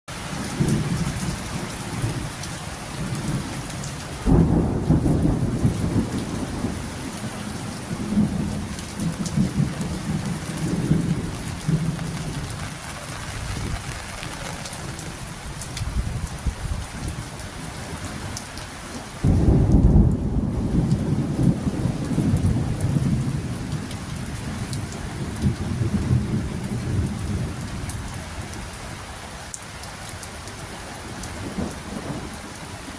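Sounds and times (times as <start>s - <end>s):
steady rain falling: 0.1s - 32.9s
raindrop ticks: 8.2s - 16.4s, 20.8s - 21.0s.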